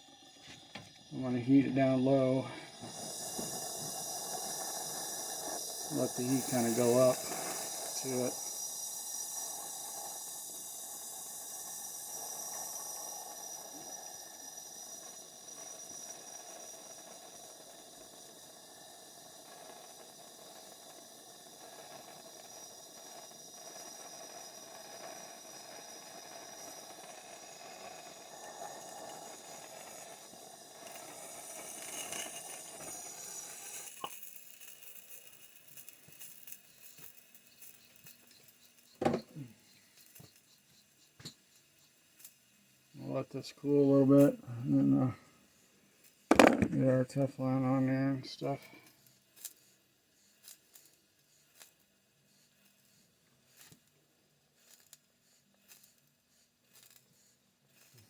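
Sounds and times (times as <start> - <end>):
torch flame hissing: 0.0 - 58.0.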